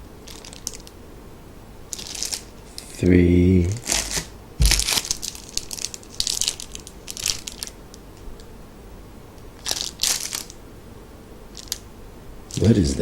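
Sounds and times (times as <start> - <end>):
plastic packaging crinkling: 0.2 - 0.9, 1.9 - 2.5, 3.8 - 7.8, 9.6 - 10.6, 11.5 - 11.8.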